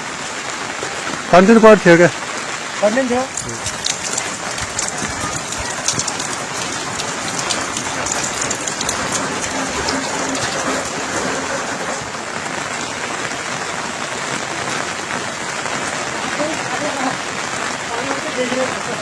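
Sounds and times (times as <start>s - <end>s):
raindrops hitting close by: 0.0s - 19.0s
steady rain falling: 0.0s - 19.0s.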